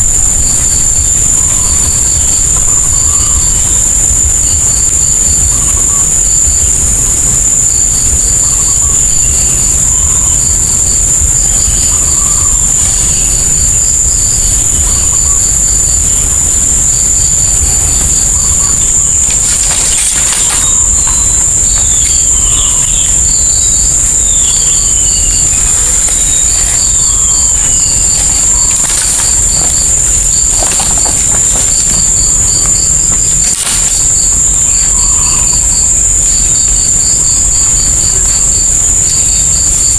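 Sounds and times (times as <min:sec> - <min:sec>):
high-pitched insect drone: 0:00.0 - 0:39.9
falling whistled bird calls: 0:18.4 - 0:36.8.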